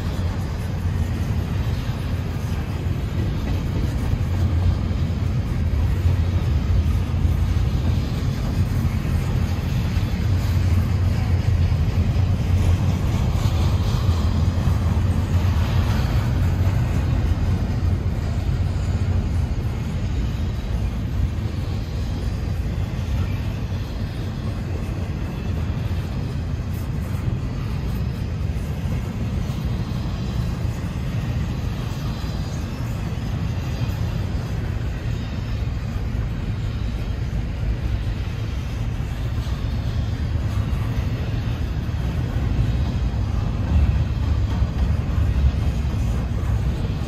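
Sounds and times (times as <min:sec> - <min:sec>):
freight train cars rumbling: 0:00.0 - 0:47.0.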